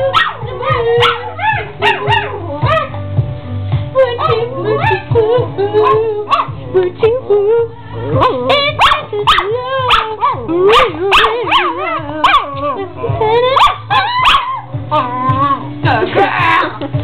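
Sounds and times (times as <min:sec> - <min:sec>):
dog howling and yipping: 0:00.0 - 0:03.0, 0:04.0 - 0:05.2, 0:08.2 - 0:15.7
recorded song playing: 0:00.0 - 0:17.0.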